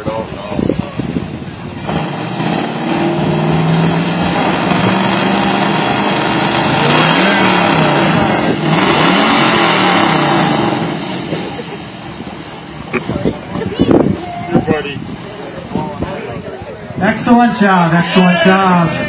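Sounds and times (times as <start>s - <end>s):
car engine revving: 1.3s - 13.0s.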